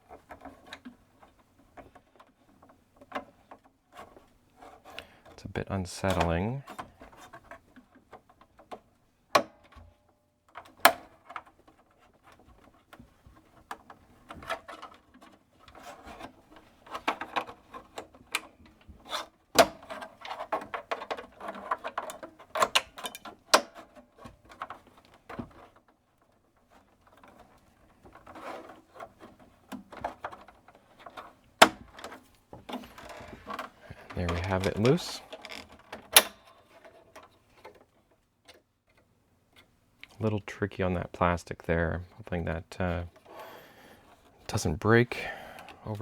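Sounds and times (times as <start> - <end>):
plastic creaking and rubbing: 0.0 - 46.0
plastic crackling: 26.6 - 40.4.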